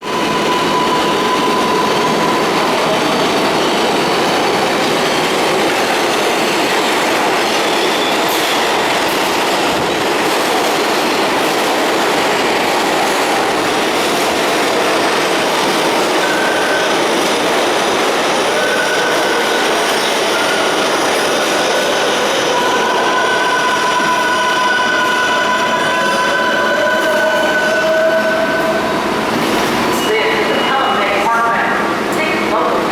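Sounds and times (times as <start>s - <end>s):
high wheel squeals: 0.0s - 4.4s, 15.5s - 29.0s
subway train rolling on rails: 0.0s - 32.9s.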